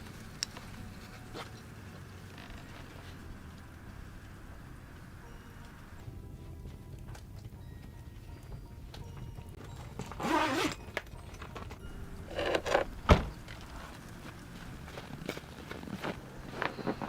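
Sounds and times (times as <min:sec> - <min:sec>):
low steady rumble: 0:00.0 - 0:09.7.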